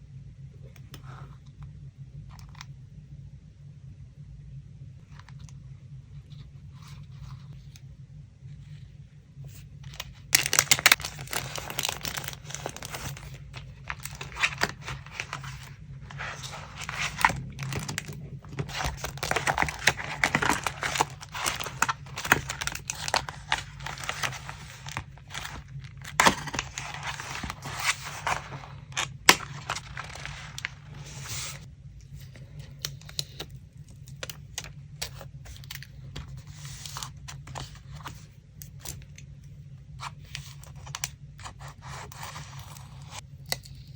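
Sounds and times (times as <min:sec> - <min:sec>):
paper crinkling and tearing: 0:09.8 - 0:31.7.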